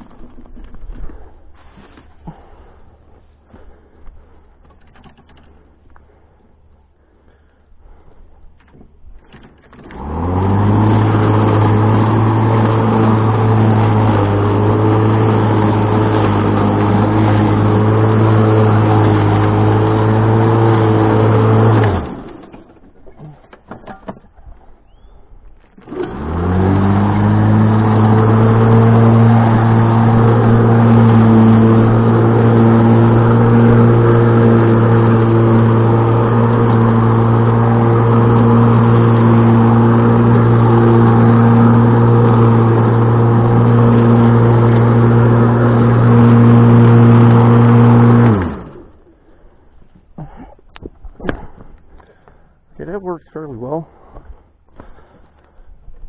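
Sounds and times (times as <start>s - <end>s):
electric motor spinning: 25.8s - 48.9s.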